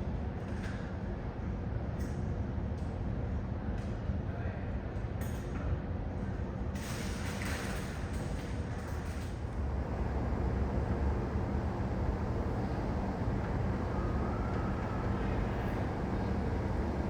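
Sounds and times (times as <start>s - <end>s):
jet engines rumbling: 9.4s - 17.0s
faint thin whine: 9.7s - 17.0s.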